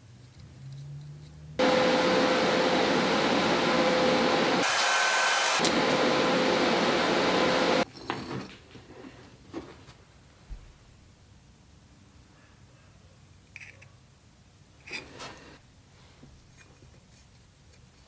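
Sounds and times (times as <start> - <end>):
electric power tool running: 1.6 - 7.8.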